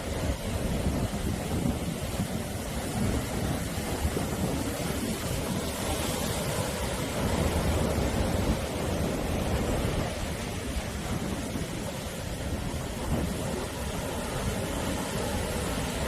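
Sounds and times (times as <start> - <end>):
sea waves breaking on shore: 0.0 - 16.0
wind buffeting microphone: 0.0 - 16.0.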